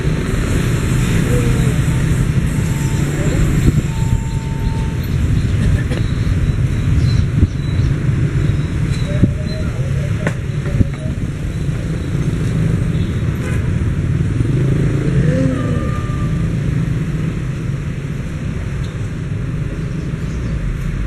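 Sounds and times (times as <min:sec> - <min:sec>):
high whine: 0:00.0 - 0:12.6
freight train wagons rolling: 0:00.3 - 0:07.0.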